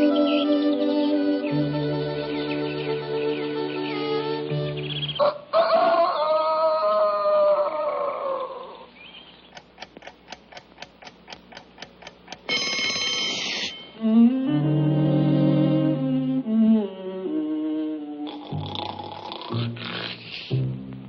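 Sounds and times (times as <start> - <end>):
clock ticking: 9.5 - 13.5
alarm clock bell ringing: 12.4 - 14.0
cartoon orchestra music: 12.5 - 18.3.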